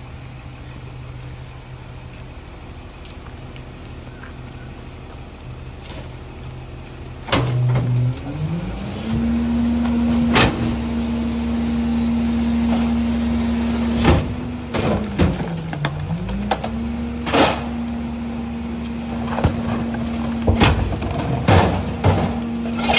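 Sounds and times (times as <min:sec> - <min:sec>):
garbage truck engine revving: 0:05.8 - 0:22.9
packer crushing load: 0:05.8 - 0:22.9
loud metal clanks: 0:19.2 - 0:22.9.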